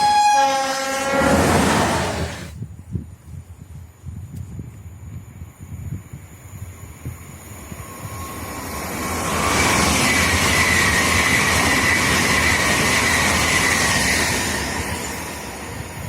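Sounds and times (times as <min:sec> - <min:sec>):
train passing at speed: 0:00.0 - 0:02.6, 0:06.3 - 0:16.0
high train whine: 0:00.0 - 0:02.8, 0:05.2 - 0:16.0.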